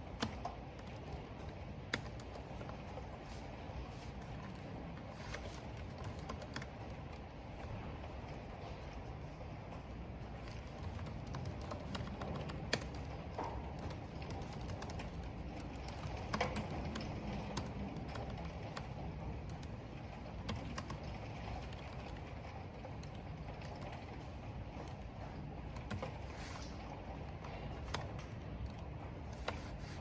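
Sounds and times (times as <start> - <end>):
computer keyboard typing: 0.0 - 7.8, 10.3 - 24.2, 25.7 - 30.0
rain: 16.4 - 25.7.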